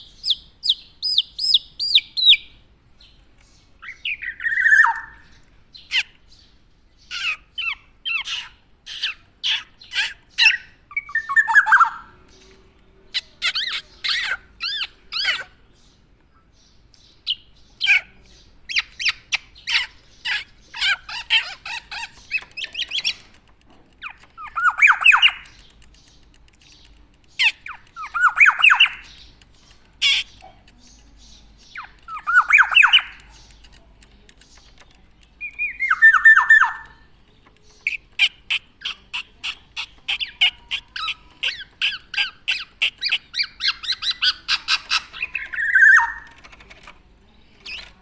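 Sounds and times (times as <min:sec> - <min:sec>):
bird calling with harsh squawks: 0:03.8 - 0:06.2, 0:07.0 - 0:12.2, 0:13.1 - 0:15.6, 0:17.2 - 0:23.3, 0:24.0 - 0:33.8, 0:35.4 - 0:46.6.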